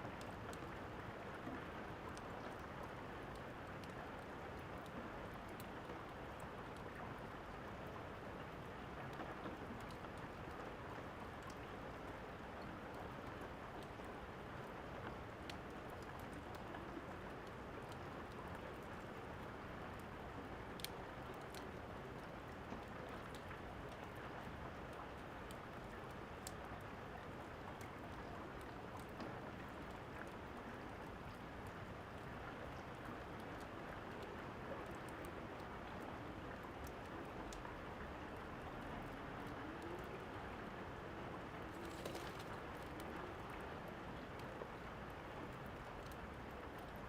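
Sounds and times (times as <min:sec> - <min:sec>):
rainfall hiss: 0:25.2 - 0:47.0
fire crackling: 0:41.6 - 0:43.0.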